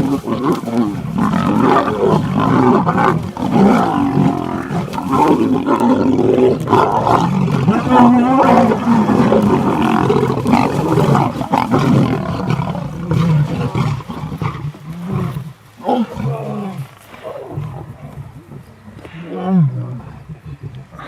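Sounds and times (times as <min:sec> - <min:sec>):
lionesses growling and snarling: 0:00.0 - 0:21.0.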